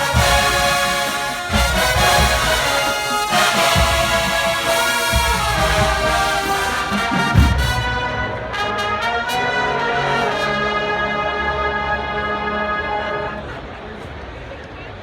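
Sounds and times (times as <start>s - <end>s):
heavy drum hit: 0.0s - 8.9s
brass section sustained chords: 0.0s - 14.0s
bass drum: 0.1s - 8.3s.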